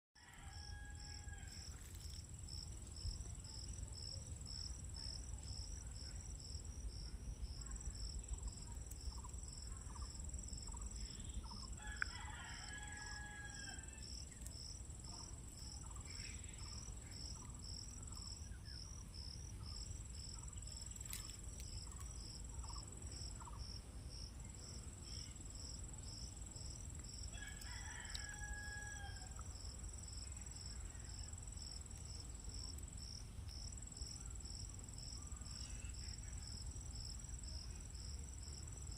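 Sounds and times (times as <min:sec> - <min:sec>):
rooster crowing: 0:00.2 - 0:01.9, 0:11.8 - 0:14.1, 0:27.3 - 0:29.4
crickets chirping: 0:00.2 - 0:38.9
high insect trill: 0:00.2 - 0:38.9.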